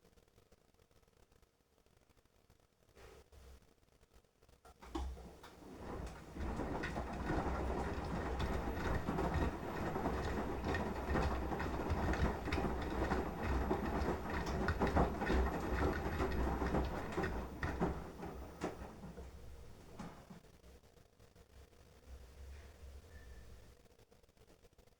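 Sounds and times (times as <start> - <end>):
washing machine click: 4.8 - 20.3
washing machine drum turning: 4.8 - 20.4
water sloshing and laundry clattering: 4.8 - 20.4
low motor hum: 5.0 - 20.3.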